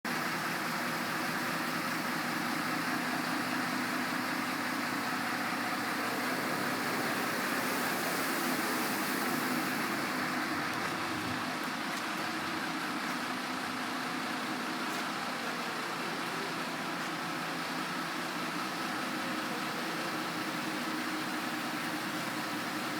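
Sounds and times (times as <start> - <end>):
water spraying hiss: 1.4 - 13.1.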